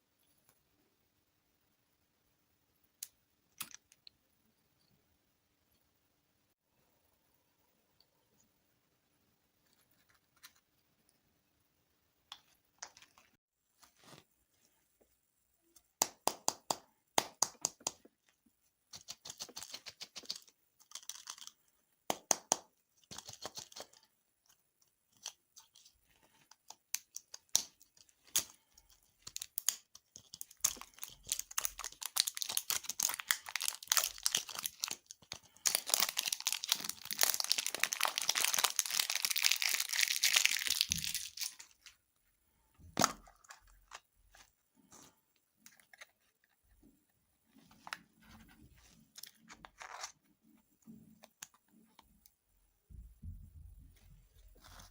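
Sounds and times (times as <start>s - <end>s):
candy packaging crinkling and tearing: 18.9s - 22.4s, 23.0s - 24.1s, 25.1s - 42.0s.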